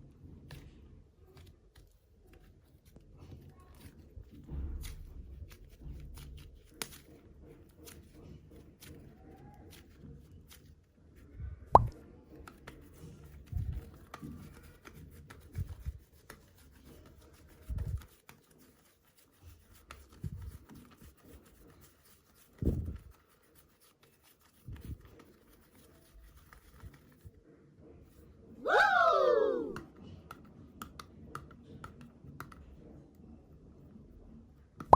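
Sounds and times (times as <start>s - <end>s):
clay squishing: 0.1s - 27.4s.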